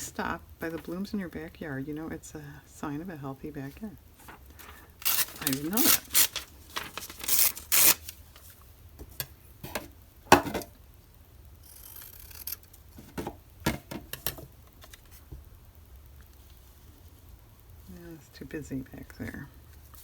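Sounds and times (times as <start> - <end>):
paper rubbing: 4.2 - 8.1
paper rustling: 4.2 - 8.6.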